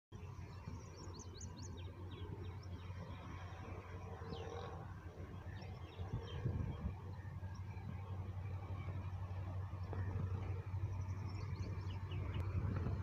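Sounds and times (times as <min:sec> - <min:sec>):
low steady rumble: 0:00.2 - 0:13.0
small birds chirping: 0:08.8 - 0:13.0.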